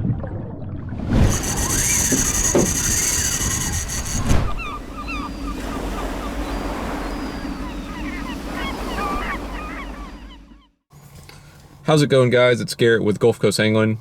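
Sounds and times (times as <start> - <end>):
wind blowing on microphone: 1.1 - 7.9
waves washing on shore: 1.1 - 10.1
flock of birds chattering: 1.3 - 10.7.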